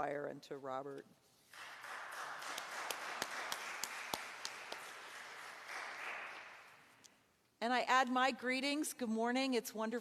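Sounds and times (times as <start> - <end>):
crowd applauding: 1.5 - 6.9
sharp single claps: 1.5 - 6.9.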